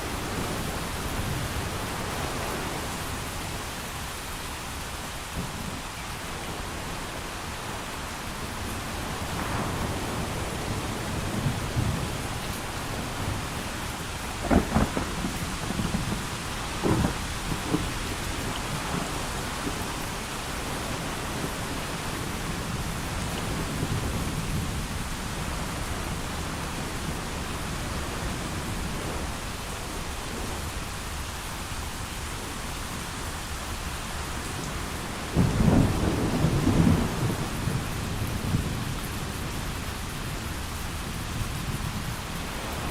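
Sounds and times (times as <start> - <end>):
heavy rain: 0.0 - 42.9
thunder rumble: 8.5 - 42.9
thunder cracks: 9.2 - 21.8, 35.3 - 38.8.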